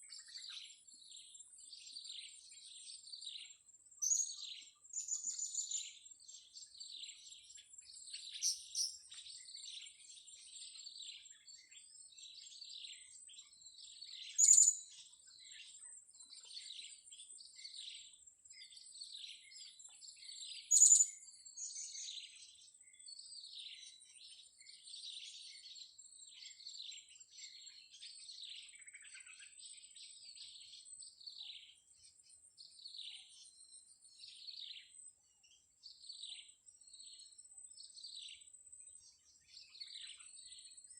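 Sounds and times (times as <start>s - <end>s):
loud sharp bird calls: 14.3s - 14.8s, 20.7s - 21.1s.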